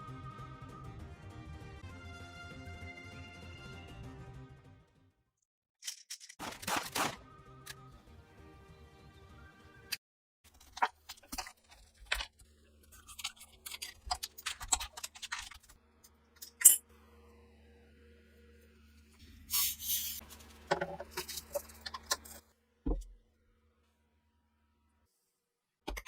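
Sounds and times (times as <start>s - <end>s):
metal gun parts clicking: 5.8s - 6.6s.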